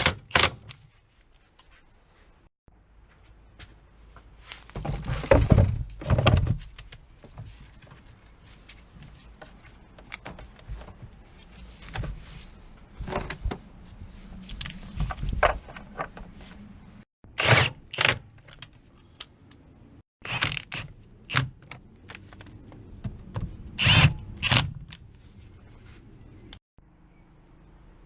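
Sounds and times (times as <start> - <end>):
tools and car parts clunking: 4.7 - 8.3, 13.0 - 13.7, 15.0 - 16.5.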